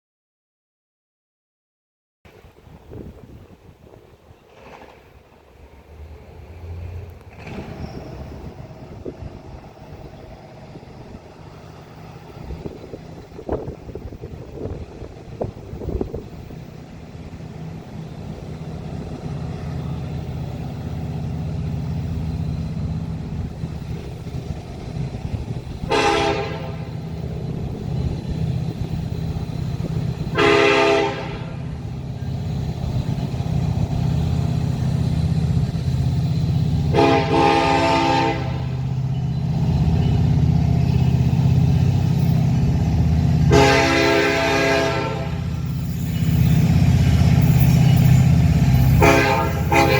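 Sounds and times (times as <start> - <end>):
diesel locomotive engine rumbling: 2.3 - 49.9
train air horn blasts: 25.8 - 27.0, 30.3 - 31.7, 36.9 - 38.8, 43.4 - 45.5, 49.0 - 49.9.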